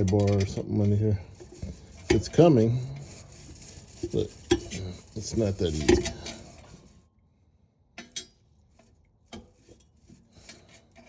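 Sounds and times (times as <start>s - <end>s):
metal scraping: 0.0s - 7.0s.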